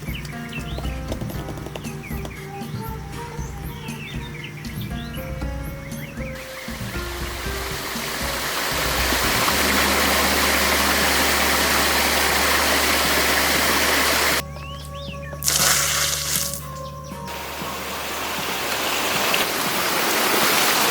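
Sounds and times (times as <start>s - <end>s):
music of low sustained notes: 0.0s - 19.8s
rushing water: 6.4s - 14.4s, 15.4s - 16.7s, 17.3s - 20.9s.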